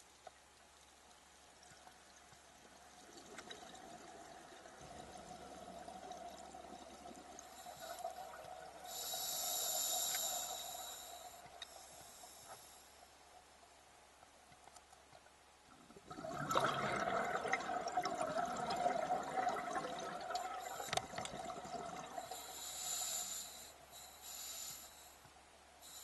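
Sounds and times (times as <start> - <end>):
regulator hissing inhalation: 7.5 - 13.0, 22.2 - 25.2
bubbling exhalation underwater: 15.8 - 22.2.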